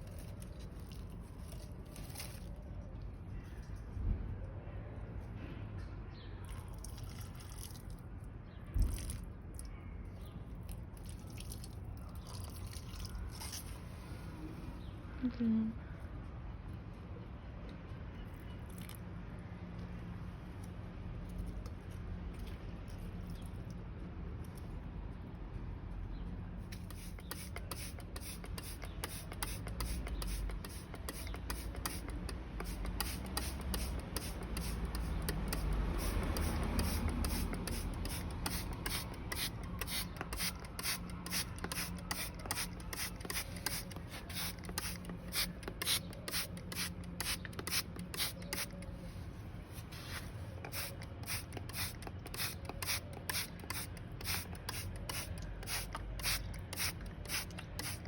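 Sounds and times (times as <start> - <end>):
hand scraping strokes: 26.8 - 58.0.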